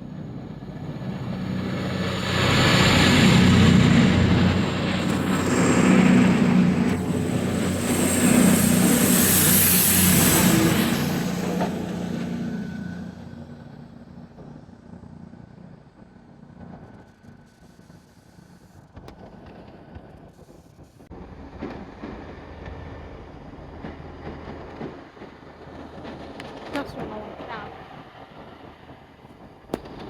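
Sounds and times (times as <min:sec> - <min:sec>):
low engine rumble: 0:00.0 - 0:18.1
vehicle passing: 0:01.2 - 0:14.2.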